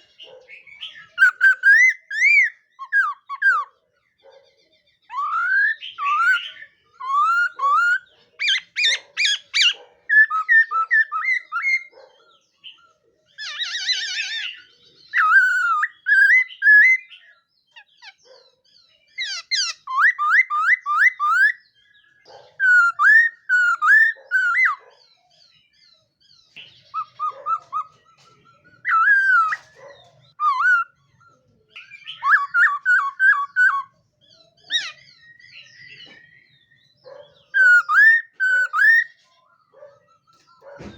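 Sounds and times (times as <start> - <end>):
bird whistled phrases: 0.0 - 3.8, 5.1 - 12.0, 12.8 - 17.4, 19.2 - 21.6, 22.5 - 24.9, 26.6 - 28.0, 28.8 - 39.2
bird chattering trills: 19.2 - 21.6, 25.9 - 39.2.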